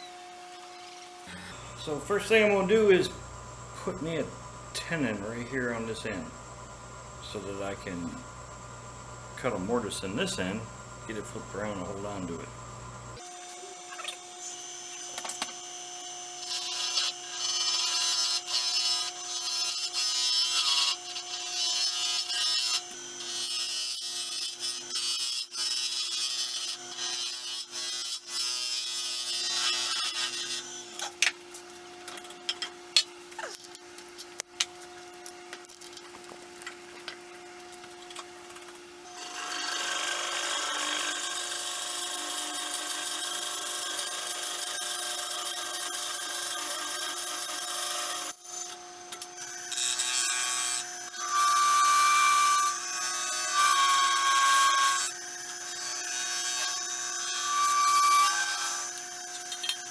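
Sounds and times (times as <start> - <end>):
wood lathe humming: 13.2 - 24.9
turning tool cutting: 13.2 - 31.3, 39.0 - 59.9.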